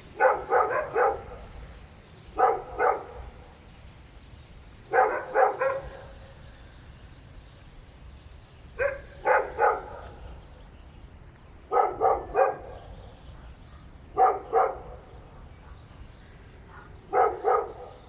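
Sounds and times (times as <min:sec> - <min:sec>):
dog barking: 0:00.2 - 0:01.5, 0:02.4 - 0:03.3, 0:04.9 - 0:06.2, 0:08.8 - 0:10.2, 0:11.7 - 0:16.0, 0:16.7 - 0:18.0.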